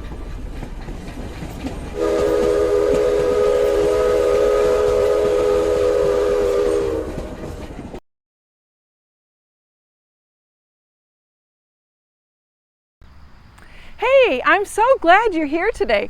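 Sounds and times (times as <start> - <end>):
moving train rumble: 0.0 - 8.0, 13.0 - 16.0
train whistle chord: 2.0 - 7.6.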